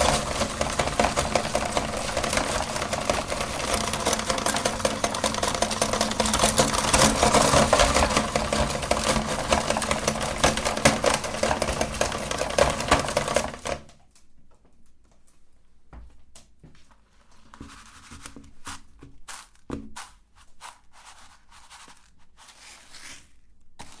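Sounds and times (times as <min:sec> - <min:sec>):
hard candy crackling and clattering: 0:00.0 - 0:13.9
meat grinder motor hum: 0:00.0 - 0:13.9
faint clicks and rattles: 0:00.0 - 0:15.4.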